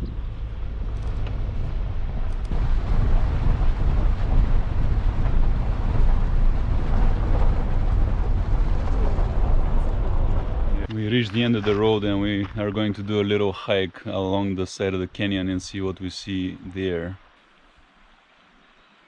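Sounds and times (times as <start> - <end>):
wind buffeting microphone: 0.0 - 13.1
car driving rumble: 0.0 - 13.5.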